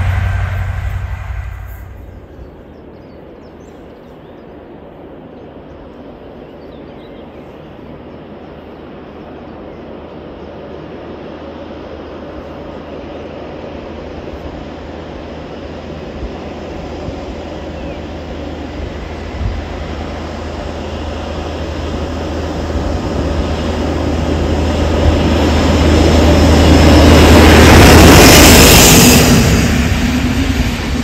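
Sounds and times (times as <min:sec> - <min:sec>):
loud rumble: 0:00.0 - 0:02.7
train approaching: 0:00.0 - 0:31.0.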